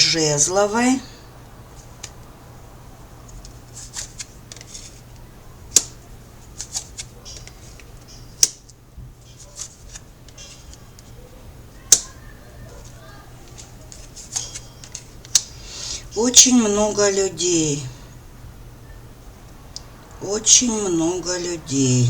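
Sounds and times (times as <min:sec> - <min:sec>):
cards rustling and flicking: 0:03.8 - 0:05.0, 0:06.6 - 0:07.8, 0:13.6 - 0:15.4.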